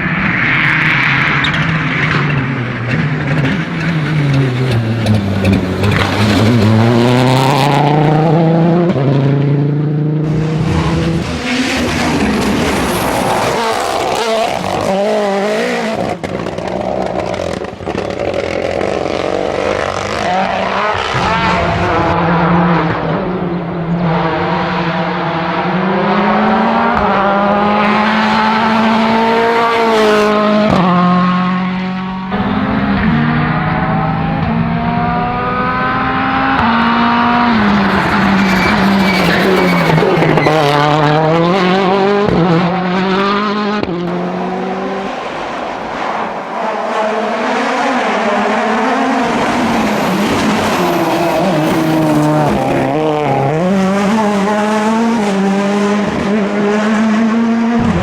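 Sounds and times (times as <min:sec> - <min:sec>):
rally car engine accelerating: 0:00.0 - 0:58.0.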